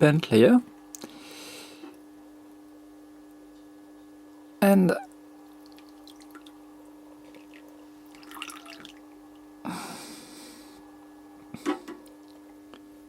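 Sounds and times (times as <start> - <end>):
water dripping and splashing: 5.4 - 6.6, 7.2 - 9.4.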